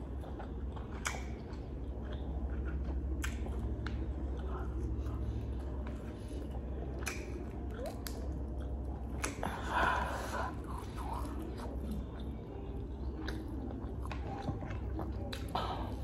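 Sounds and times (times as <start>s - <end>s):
close-up chewing: 0.0s - 16.0s
steady low hum: 0.0s - 16.0s.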